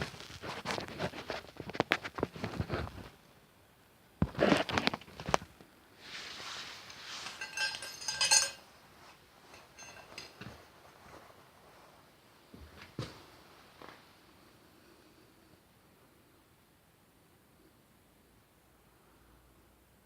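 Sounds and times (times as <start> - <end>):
metal scrape: 6.0 - 10.6
metal tools clattering: 6.9 - 8.7, 9.4 - 10.6
ringing metal clink: 7.2 - 8.7, 9.5 - 10.5.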